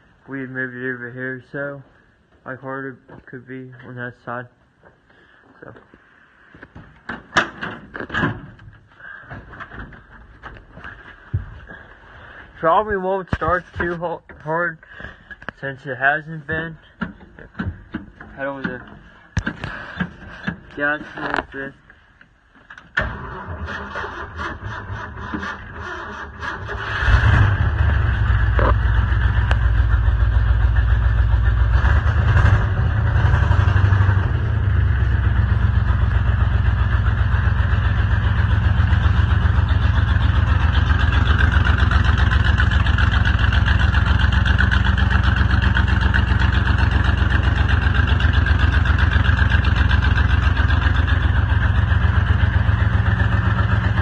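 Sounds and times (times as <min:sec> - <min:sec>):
truck engine running: 0:26.6 - 0:54.0.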